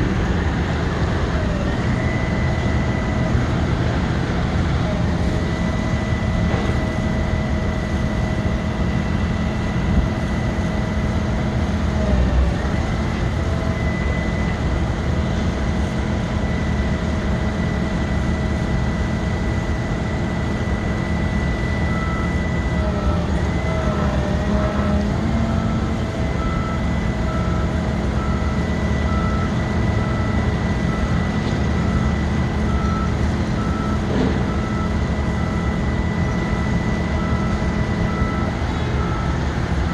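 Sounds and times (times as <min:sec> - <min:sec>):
hydraulic boom whine: 0:00.0 - 0:39.9
truck engine rumble: 0:00.0 - 0:39.9
short warning beeps: 0:25.5 - 0:39.9.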